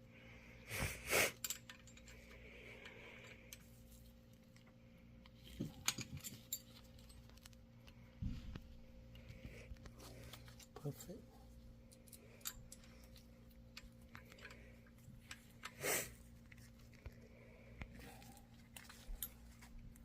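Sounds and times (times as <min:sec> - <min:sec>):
metal tools clinking: 0:01.3 - 0:04.0, 0:05.3 - 0:07.4, 0:11.9 - 0:15.8, 0:18.2 - 0:19.8.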